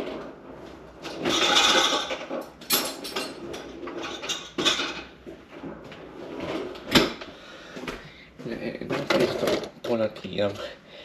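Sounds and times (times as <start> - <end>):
dishes and utensils clattering: 1.0 - 5.2.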